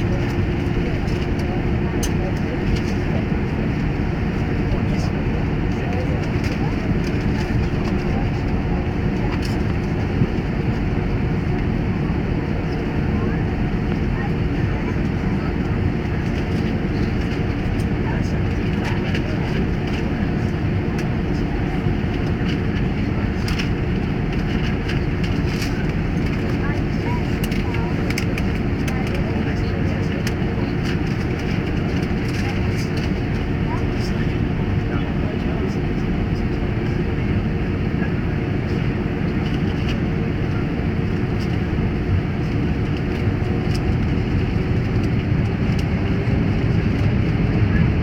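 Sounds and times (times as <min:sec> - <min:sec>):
airliner cabin rumble: 0:00.0 - 0:48.0.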